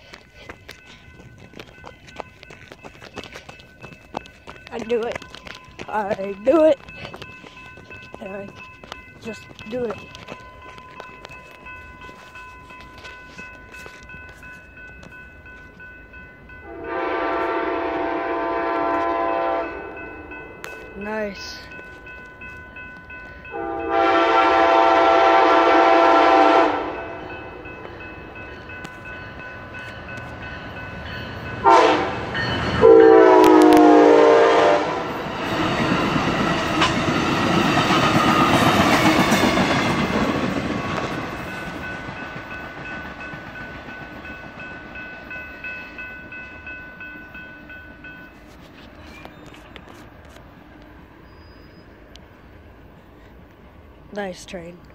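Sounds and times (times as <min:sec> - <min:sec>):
train rolling past: 0:00.0 - 0:54.9
train horn blasts: 0:16.6 - 0:20.1, 0:23.5 - 0:27.3, 0:31.6 - 0:35.2.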